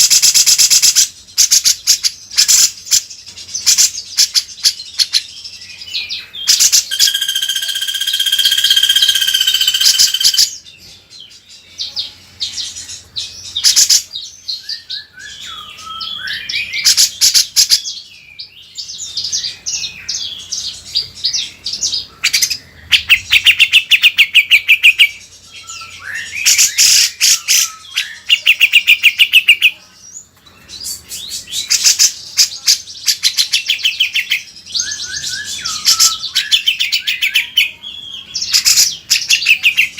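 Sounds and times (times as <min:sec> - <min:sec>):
songbird trilling and chattering: 0:00.0 - 0:10.7.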